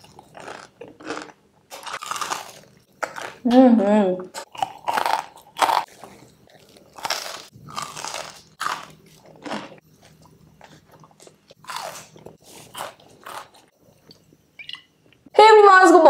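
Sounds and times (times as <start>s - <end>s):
person crunching food: 0.0s - 3.5s, 4.4s - 13.7s.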